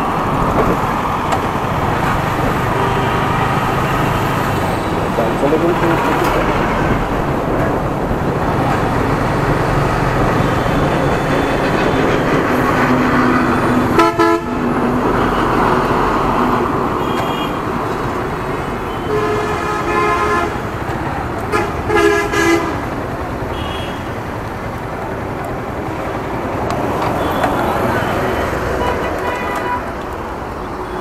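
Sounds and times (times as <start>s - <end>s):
wind: 0.0s - 31.0s
vehicle horns honking: 2.7s - 4.0s, 13.9s - 14.6s, 17.0s - 17.6s, 18.9s - 20.6s, 21.5s - 22.8s, 23.5s - 24.1s, 27.2s - 29.9s.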